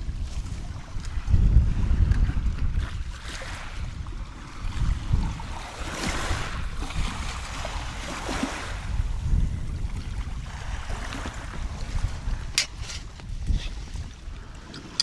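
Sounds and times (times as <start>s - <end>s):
wind rumbling on microphone: 0.0s - 15.0s
ocean surf washing ashore: 3.3s - 9.2s.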